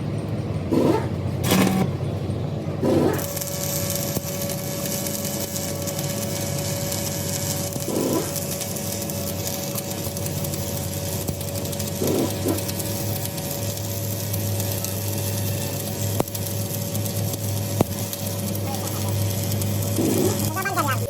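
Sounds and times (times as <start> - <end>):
workshop machine hum: 0.0 - 21.0
brief loud machine sounds: 0.7 - 2.0.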